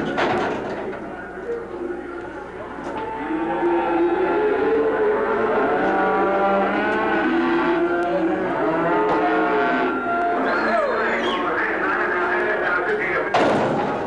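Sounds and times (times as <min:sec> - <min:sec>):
cattle mooing: 0:02.9 - 0:13.5.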